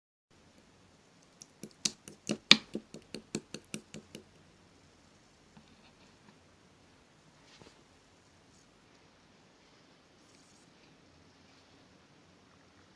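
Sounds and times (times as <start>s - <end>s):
slime popping and clicking: 1.4s - 4.2s.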